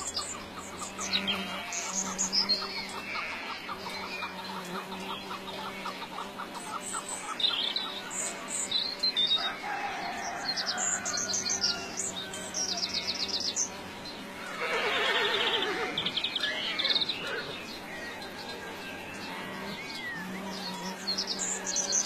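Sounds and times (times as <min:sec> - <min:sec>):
rapidly pulsing animal call: 0:00.0 - 0:08.5, 0:14.3 - 0:22.0
small birds chirping and trilling: 0:00.0 - 0:22.0.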